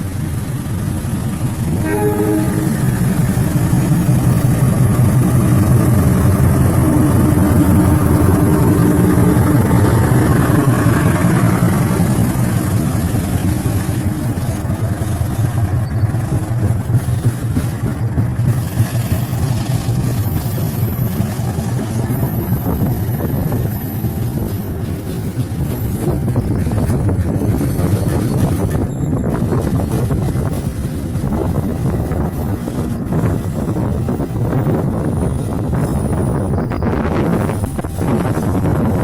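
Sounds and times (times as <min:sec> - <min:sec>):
locomotive engine and wheel rumble: 0:00.0 - 0:39.0
train horn blast: 0:01.8 - 0:03.8.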